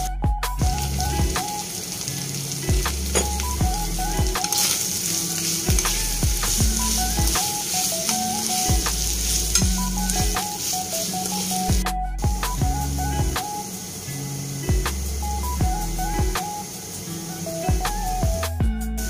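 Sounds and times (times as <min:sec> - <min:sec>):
background music with steady beat: 0:00.0 - 0:19.0
food sizzling in a frying pan: 0:00.6 - 0:19.0
metal spoon stirring: 0:04.4 - 0:11.7.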